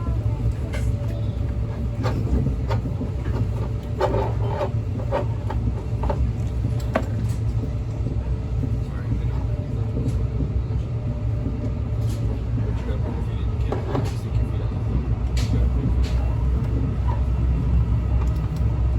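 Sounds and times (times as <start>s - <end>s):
faint voices: 0.0s - 2.7s, 7.9s - 18.2s.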